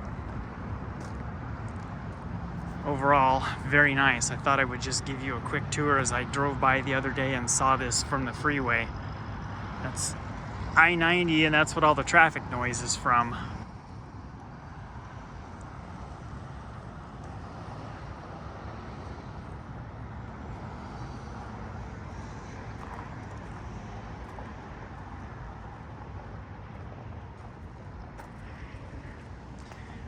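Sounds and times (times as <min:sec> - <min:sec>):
freeway traffic noise: 0:00.0 - 0:30.0.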